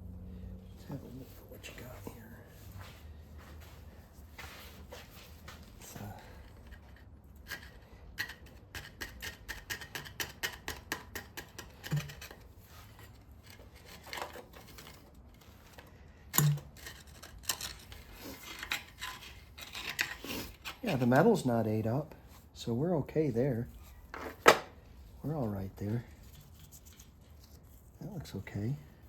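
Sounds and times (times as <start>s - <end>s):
screwdriver scraping metal: 6.6s - 15.2s, 16.4s - 21.1s.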